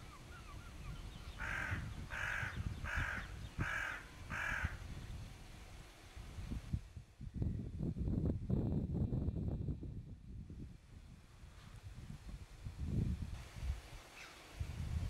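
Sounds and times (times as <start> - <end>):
crow-like bird calling: 0.0 - 4.8
wind rumble on microphone: 0.0 - 15.0.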